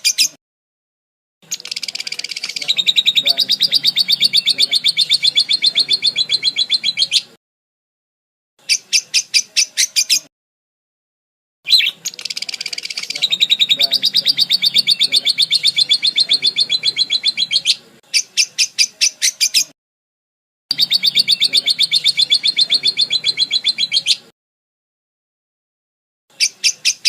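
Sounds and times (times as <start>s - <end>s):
parakeet chirping: 1.4s - 7.4s, 8.6s - 10.2s, 11.7s - 19.7s, 20.7s - 24.3s, 26.3s - 27.0s.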